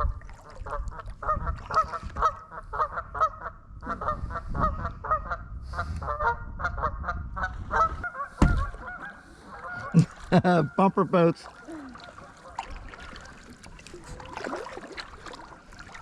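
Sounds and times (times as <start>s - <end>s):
geese honking: 6.1s - 10.0s.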